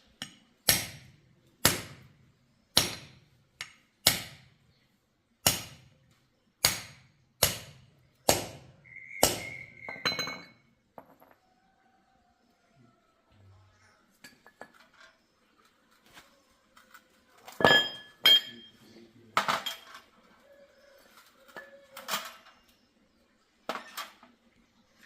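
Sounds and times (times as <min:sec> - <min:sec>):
metal tools clinking on hard surface: 0:09.9 - 0:11.4, 0:16.8 - 0:18.8, 0:19.4 - 0:20.1.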